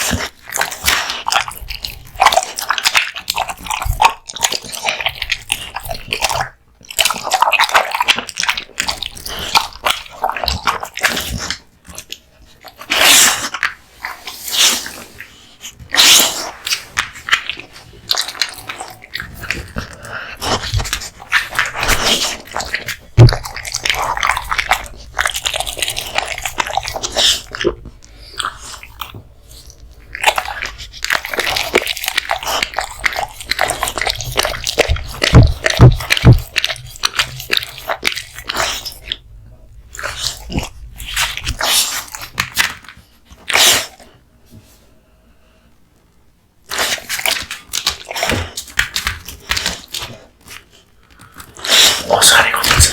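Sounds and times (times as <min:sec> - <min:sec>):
dog chewing meat and bones: 0:00.0 - 0:44.7, 0:46.5 - 0:52.9.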